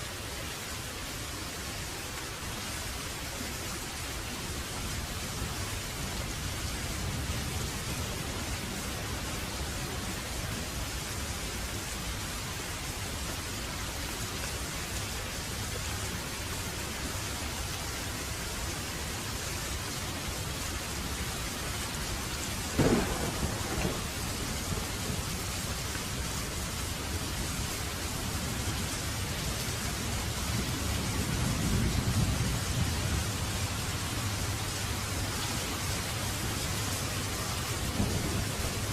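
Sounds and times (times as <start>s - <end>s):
heavy rain: 0.0s - 38.9s
rolling thunder rumble: 22.6s - 38.9s
thunder crack: 22.7s - 25.6s, 38.0s - 38.9s.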